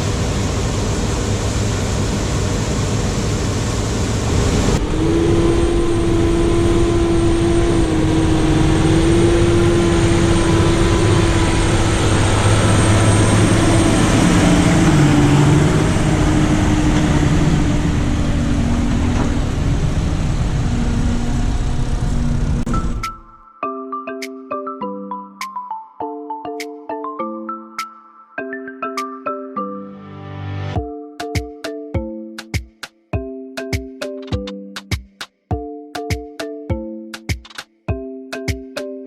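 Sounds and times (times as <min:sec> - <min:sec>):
farm machinery engine drone: 0:00.0 - 0:23.3
steady machinery whine: 0:00.0 - 0:23.3.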